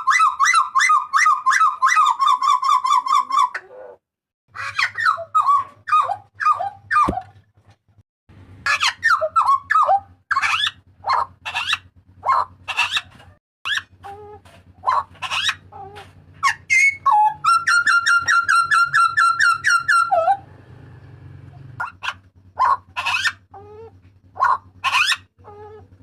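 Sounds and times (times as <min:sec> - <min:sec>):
rapid repeated bird notes: 0:08.6 - 0:26.0
butcherbird whistled calls: 0:16.4 - 0:20.4.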